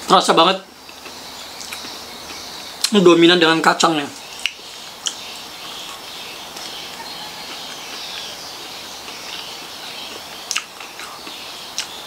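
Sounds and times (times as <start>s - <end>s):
steady high hiss: 0.0s - 12.0s
person chewing crunchy snack: 9.0s - 12.0s.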